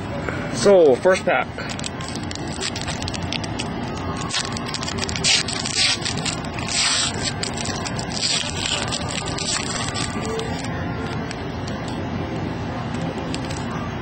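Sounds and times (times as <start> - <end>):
card pack wrapper tearing: 1.6 - 11.2.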